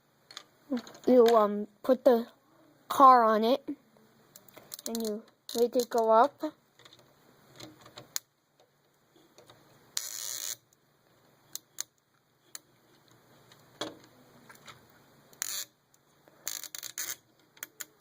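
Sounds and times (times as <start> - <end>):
plastic toy pieces clicking: 4.6 - 6.1.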